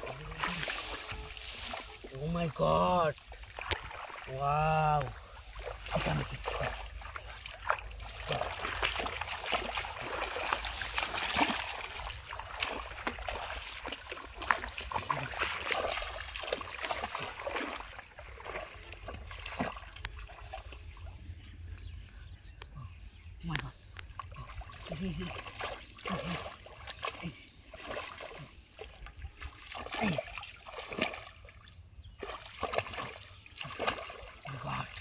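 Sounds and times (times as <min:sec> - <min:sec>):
hands splashing in shallow water: 0:03.3 - 0:20.7.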